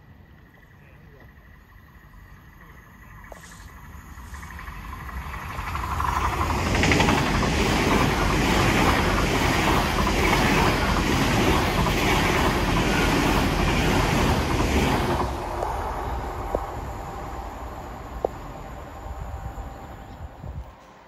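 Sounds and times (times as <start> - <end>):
train passing at speed: 0.0 - 21.0.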